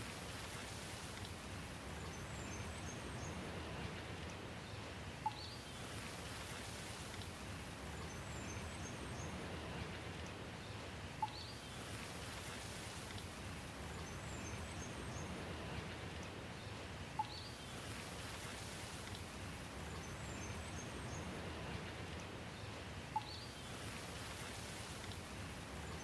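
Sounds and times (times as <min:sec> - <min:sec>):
steady rain hiss: 0:00.0 - 0:26.0
faint high bird chirps: 0:17.2 - 0:17.6, 0:23.2 - 0:23.6.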